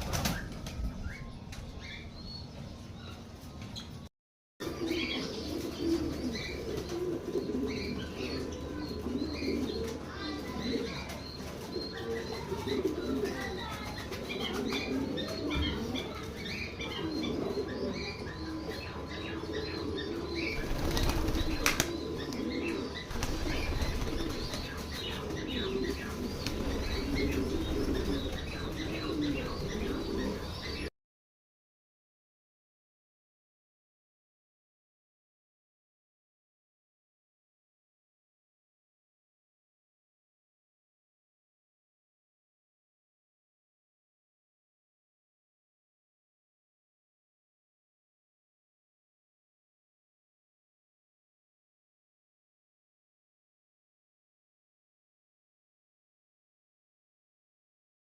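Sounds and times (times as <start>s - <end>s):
pigeons flapping wings: 0.0s - 1.0s, 20.6s - 22.5s, 23.1s - 29.1s
pigeons cooing: 4.6s - 30.9s.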